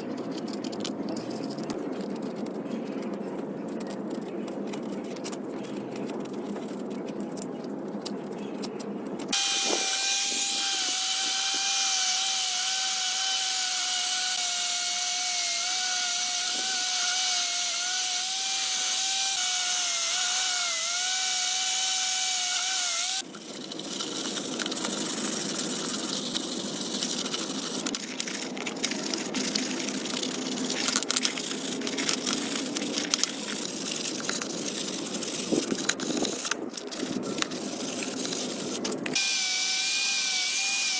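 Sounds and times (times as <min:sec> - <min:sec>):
hand-work scraping and rubbing: 0:00.0 - 0:40.9
power tool whining: 0:09.3 - 0:23.2, 0:39.2 - 0:40.9.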